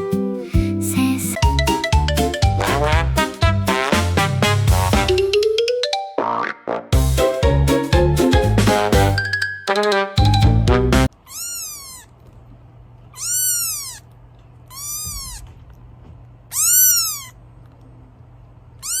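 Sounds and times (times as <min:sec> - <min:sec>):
cat meowing: 0:11.2 - 0:12.1, 0:13.2 - 0:14.1, 0:14.7 - 0:15.6, 0:16.5 - 0:17.4, 0:18.8 - 0:19.0.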